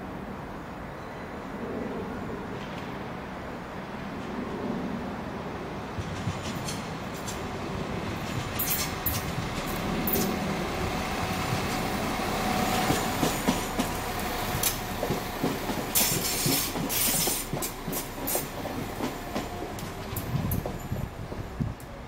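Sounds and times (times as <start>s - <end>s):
train rumbling past: 0.1s - 22.0s
wheels clattering over rail joints: 5.9s - 21.8s.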